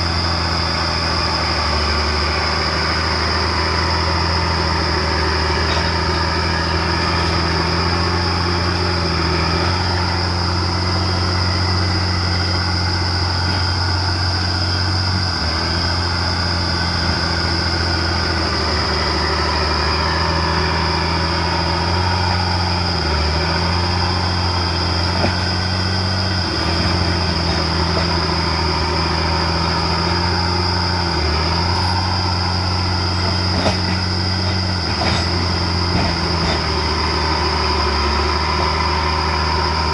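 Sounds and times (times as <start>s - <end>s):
dozer diesel engine running: 0.0s - 39.9s
high-pitched whine: 0.0s - 39.9s.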